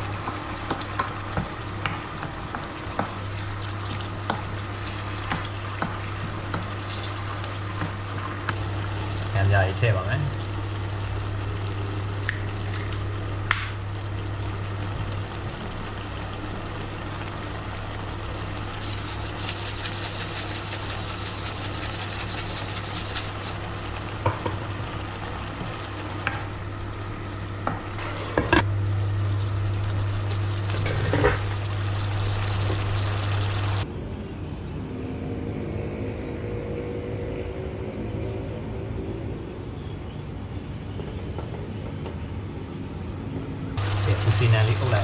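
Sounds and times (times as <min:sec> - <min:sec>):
curry sizzling in a pot: 0:00.0 - 0:33.8, 0:43.8 - 0:45.0
low hum: 0:10.3 - 0:33.8.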